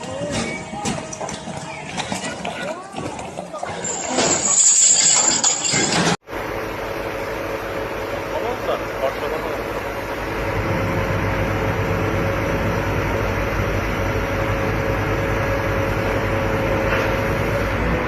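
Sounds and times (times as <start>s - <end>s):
machine engine running with whine: 3.8s - 18.0s.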